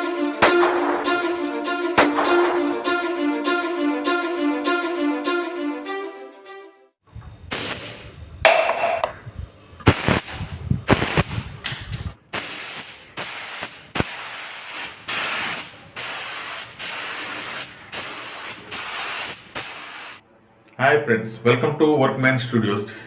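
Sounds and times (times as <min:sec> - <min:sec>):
paint spray gun hissing: 0:07.5 - 0:08.0, 0:09.9 - 0:11.4, 0:12.3 - 0:20.2.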